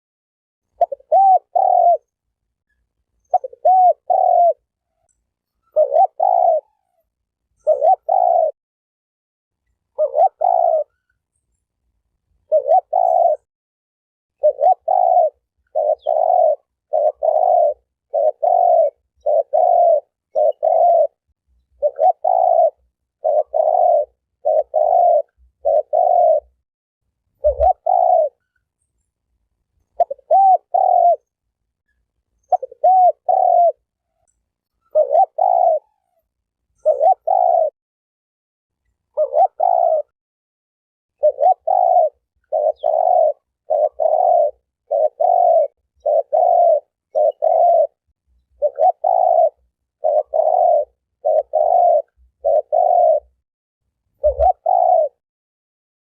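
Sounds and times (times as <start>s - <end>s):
dove cooing: 0.7s - 2.2s, 3.2s - 8.6s, 9.9s - 11.1s, 12.4s - 13.5s, 14.4s - 26.6s, 27.4s - 28.6s, 29.9s - 31.3s, 32.4s - 36.2s, 36.8s - 37.8s, 39.1s - 40.1s, 41.2s - 53.4s, 54.1s - 55.2s.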